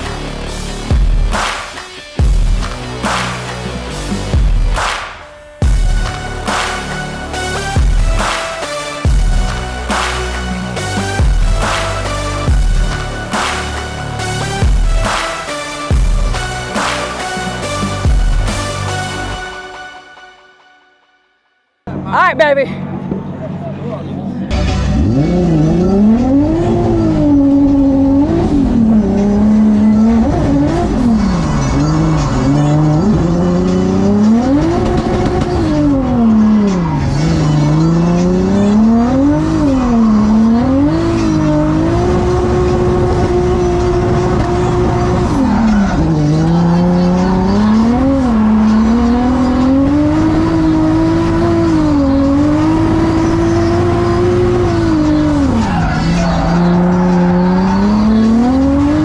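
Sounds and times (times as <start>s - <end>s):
car engine revving hard: 5.6s - 19.4s, 24.5s - 59.0s
tyre squeal: 24.7s - 59.0s.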